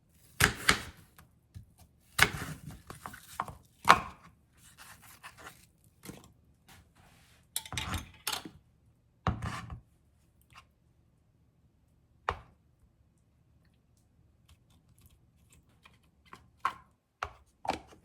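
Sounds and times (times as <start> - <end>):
knife scraping board: 2.2 - 3.5, 9.4 - 9.8.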